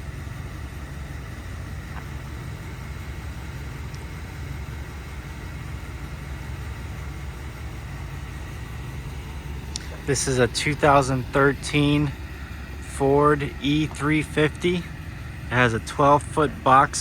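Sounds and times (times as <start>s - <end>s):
van engine idling: 0.0s - 17.0s.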